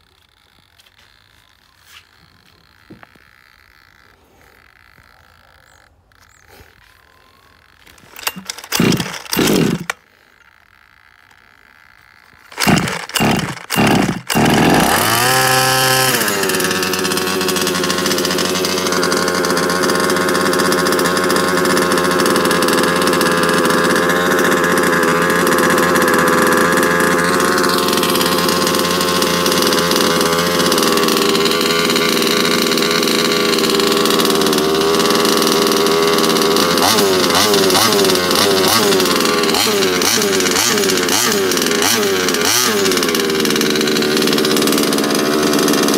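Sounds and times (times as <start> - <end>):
two-stroke engine revving and idling: 0.0 - 45.9
pull-start cord pulls: 7.2 - 45.9.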